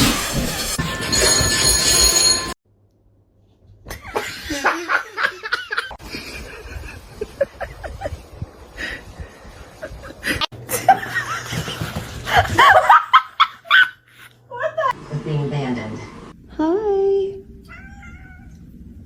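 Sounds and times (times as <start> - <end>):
people laughing and snickering: 3.9 - 8.4.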